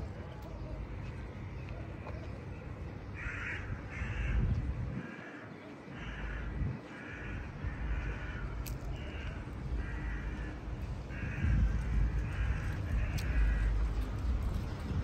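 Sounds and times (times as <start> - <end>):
low rumble: 2.7 - 5.1, 6.0 - 15.0.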